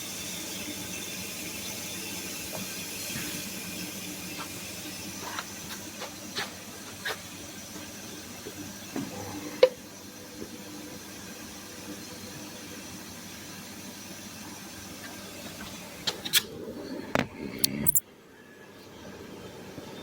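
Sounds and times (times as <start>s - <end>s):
washing machine hissing: 0.0s - 20.0s.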